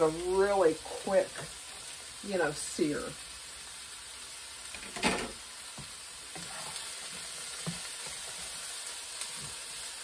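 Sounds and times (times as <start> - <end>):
food sizzling in a skillet: 0.0 - 10.0
spatula stirring and tapping pan: 1.1 - 2.0, 4.6 - 10.0.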